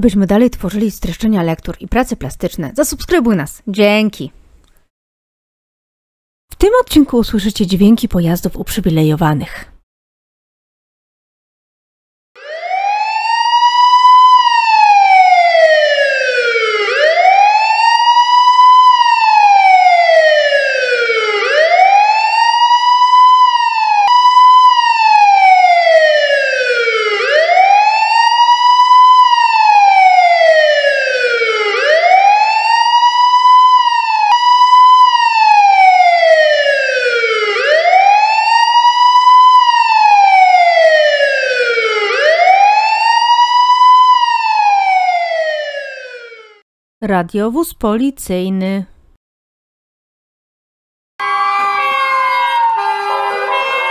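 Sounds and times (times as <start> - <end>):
police siren wailing: 12.4 - 46.6, 51.2 - 53.9.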